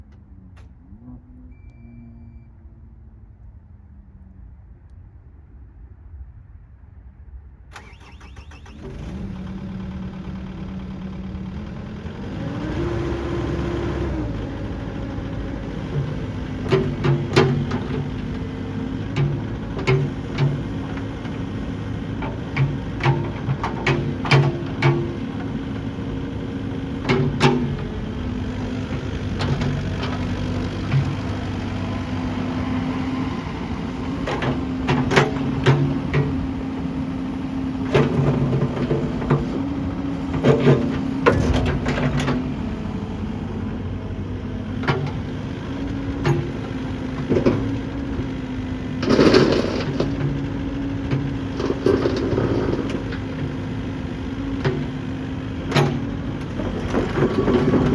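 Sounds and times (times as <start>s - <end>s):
excavator diesel engine running: 7.8s - 57.9s
sharp clanks and knocks: 15.8s - 26.1s, 26.7s - 31.6s, 34.2s - 36.5s, 37.9s - 39.6s, 46.2s - 48.3s, 48.9s - 53.7s, 55.7s - 57.9s.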